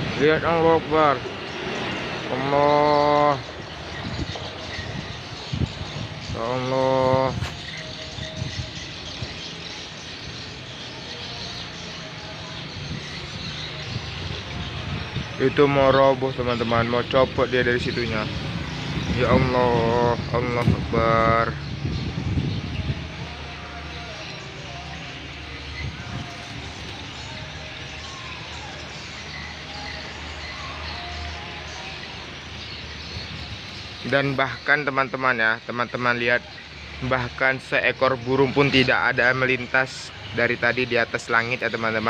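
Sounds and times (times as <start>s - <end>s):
road traffic: 0.0s - 42.0s
strong storm wind blowing: 3.4s - 9.3s, 12.8s - 24.1s, 25.7s - 27.7s.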